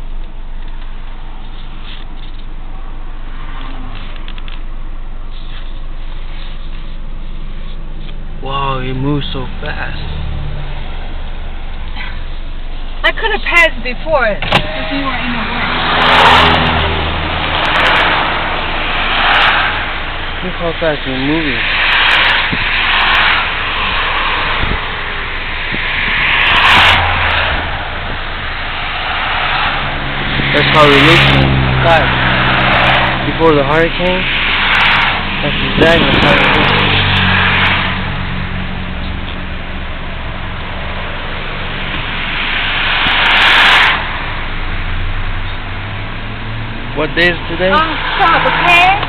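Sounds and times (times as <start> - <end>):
car road and wind noise: 0.0 - 49.0
rushing hiss: 14.9 - 38.8, 40.4 - 45.4.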